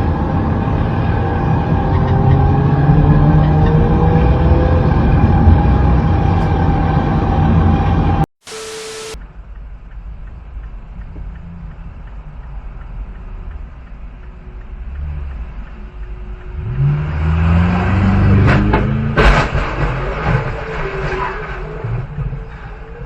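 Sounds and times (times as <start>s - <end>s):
vehicle engine revving: 0.0s - 9.2s, 14.8s - 22.7s.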